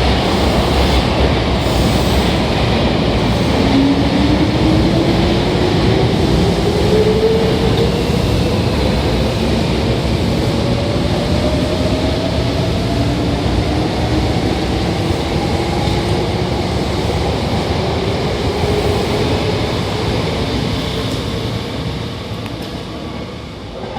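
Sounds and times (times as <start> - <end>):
electric train motor whine: 0.0 - 3.8
wheels rumbling on rail: 0.0 - 23.9.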